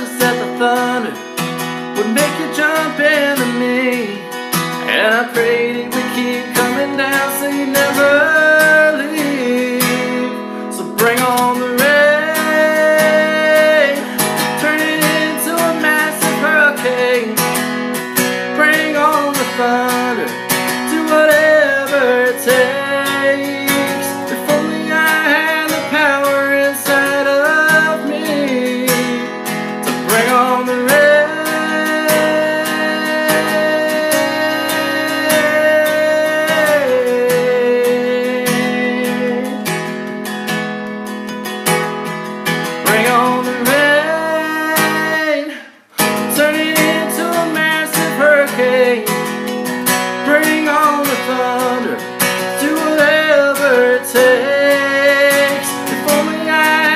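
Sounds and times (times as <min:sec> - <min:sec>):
man singing long held notes: 0:00.0 - 0:01.2, 0:30.0 - 0:39.6
strummed acoustic guitar: 0:00.0 - 0:56.9.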